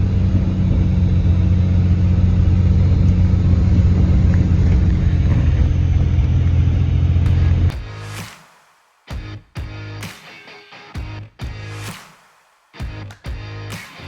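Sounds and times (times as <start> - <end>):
pickup engine and road drone: 0.0 - 8.2.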